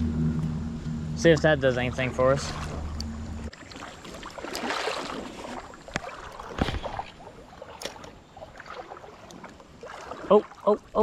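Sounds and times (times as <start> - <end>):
creek water splashing: 0.2 - 11.0.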